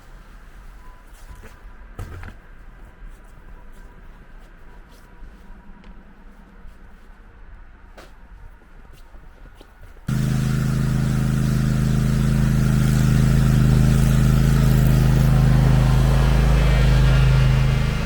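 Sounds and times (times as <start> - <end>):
ride-on mower engine: 10.1 - 18.0.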